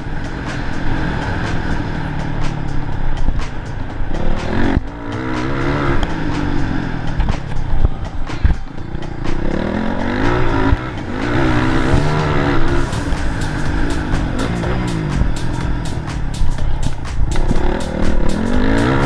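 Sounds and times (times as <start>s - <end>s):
motorcycle engine revving: 0.0s - 19.0s
dull low thumps: 10.8s - 19.0s.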